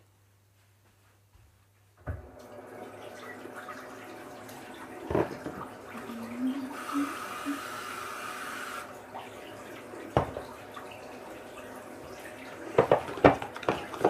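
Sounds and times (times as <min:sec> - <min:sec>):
tap running into sink: 0:04.4 - 0:06.1, 0:10.0 - 0:11.4, 0:12.0 - 0:14.0.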